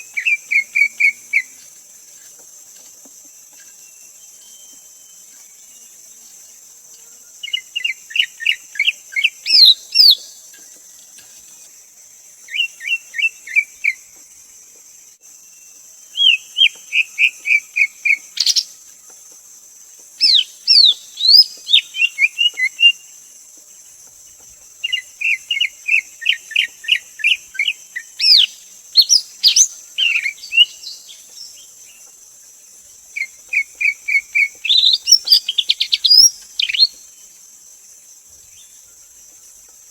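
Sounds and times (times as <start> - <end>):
steady high hiss: 0.0 - 39.9
bird singing chirps and whistles: 3.8 - 5.2, 7.4 - 10.3, 12.5 - 14.0, 16.1 - 18.7, 20.2 - 23.0, 24.8 - 31.6, 33.2 - 37.0.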